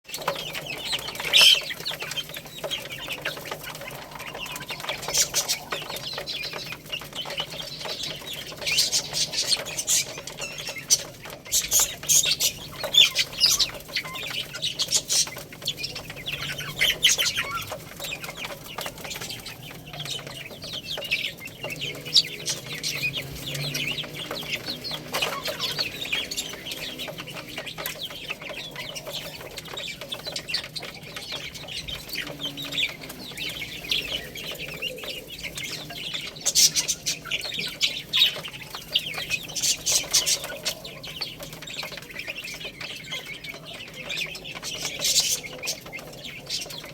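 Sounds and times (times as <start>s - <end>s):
baby chicks peeping: 0.0s - 46.9s.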